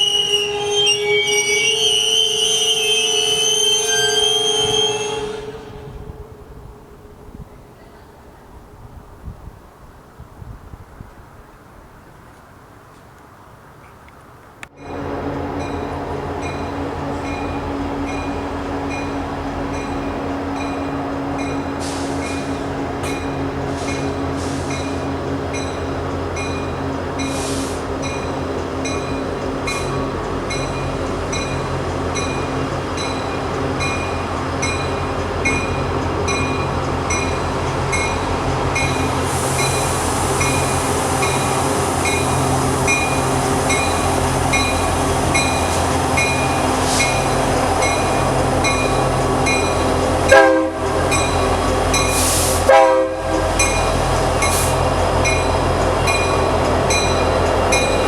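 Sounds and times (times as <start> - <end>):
train horn blasts: 0.0 - 8.0, 14.8 - 25.7, 37.1 - 56.3
diesel locomotives droning: 0.0 - 58.0.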